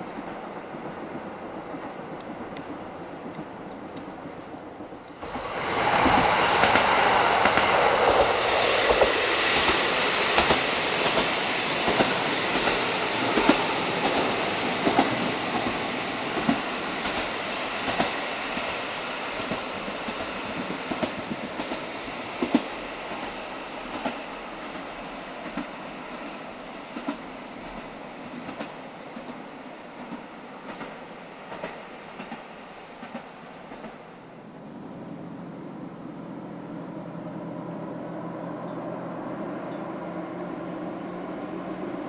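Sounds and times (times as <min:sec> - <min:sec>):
train wheels clicking over rail joints: 0:05.0 - 0:34.1.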